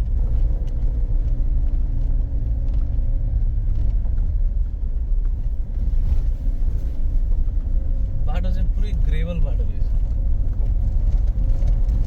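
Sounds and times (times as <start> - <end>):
engine and tyres on gravel: 0.0 - 12.0
faint engine hum: 0.0 - 12.0.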